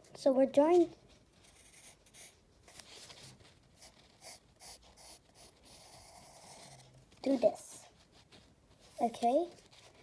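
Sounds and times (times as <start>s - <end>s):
pencil scratching on paper: 0.6s - 10.0s.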